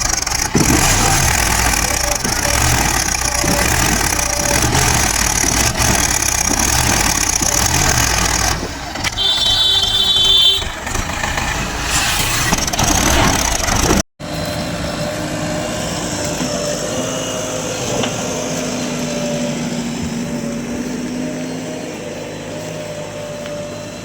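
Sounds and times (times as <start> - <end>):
heavy diesel engines running: 0.0 - 24.0.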